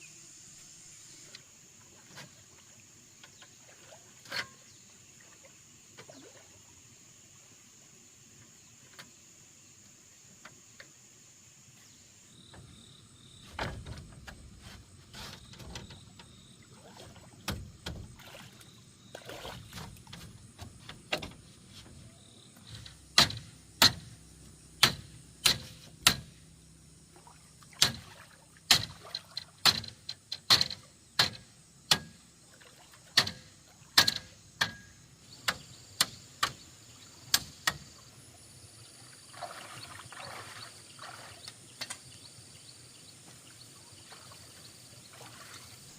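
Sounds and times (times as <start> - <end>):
dull thumps: 13.4 - 16.2
sharp knocks from hand work: 23.2 - 24.1, 24.8 - 26.3, 28.7 - 28.9, 29.6 - 32.2, 33.2 - 33.4, 34.0 - 36.6.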